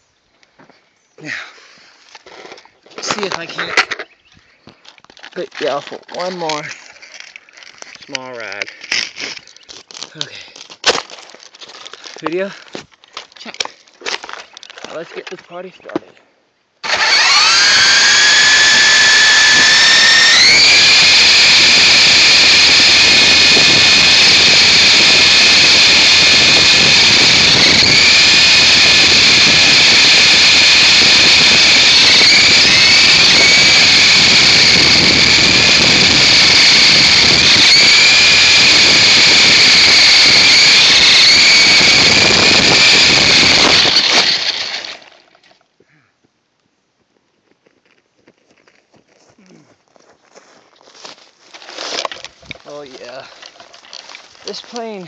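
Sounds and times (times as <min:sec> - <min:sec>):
rc helicopter motor whining: 0:16.8 - 0:45.3.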